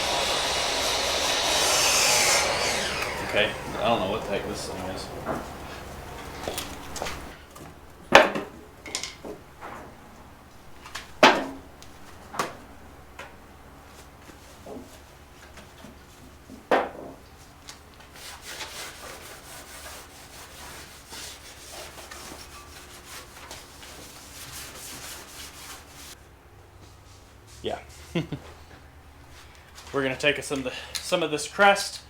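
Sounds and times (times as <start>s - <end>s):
rubbing on sheet metal: 18.1s - 26.2s.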